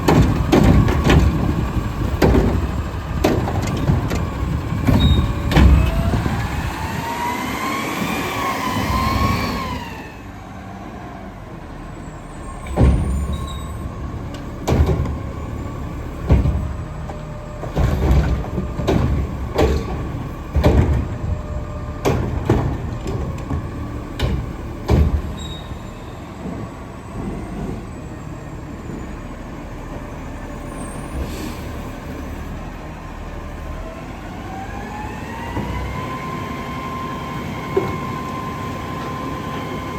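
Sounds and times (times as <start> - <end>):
knocks and thumps: 0.0 - 6.5, 14.4 - 15.5, 16.1 - 25.4
garbage truck engine whining: 0.0 - 39.9.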